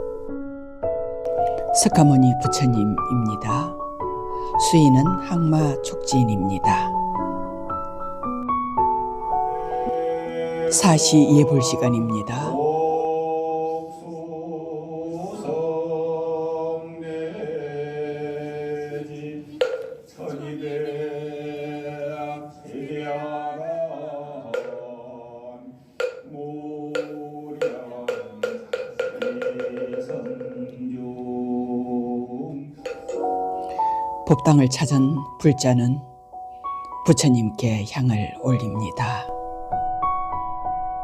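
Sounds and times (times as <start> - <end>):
monk chanting: 9.5 - 33.4
wooden block knocks: 19.6 - 20.1, 24.6 - 24.8, 26.0 - 26.3, 27.0 - 30.7, 32.8 - 33.3.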